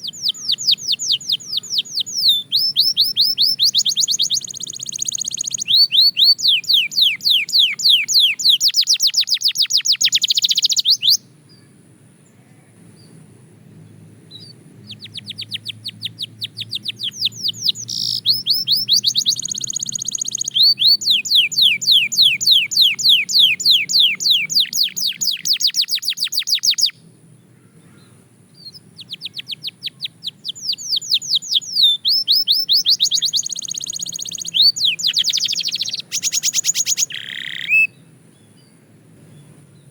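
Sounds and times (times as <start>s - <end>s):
canary singing trills: 0.0s - 11.7s, 13.8s - 27.1s, 27.8s - 39.9s.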